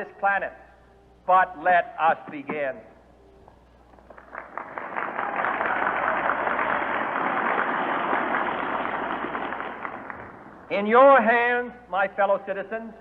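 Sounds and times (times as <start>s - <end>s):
crowd applauding: 3.9s - 10.7s.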